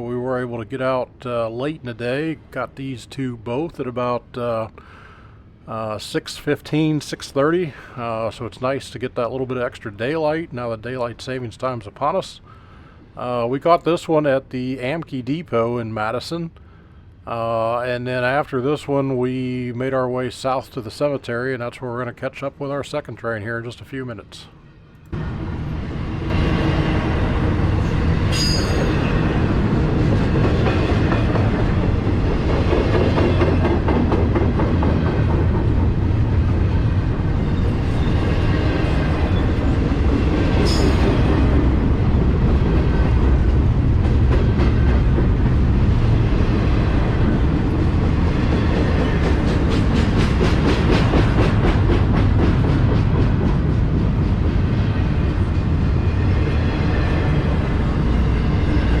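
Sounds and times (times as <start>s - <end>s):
freight train wheels rumbling on rail: 25.2s - 59.0s.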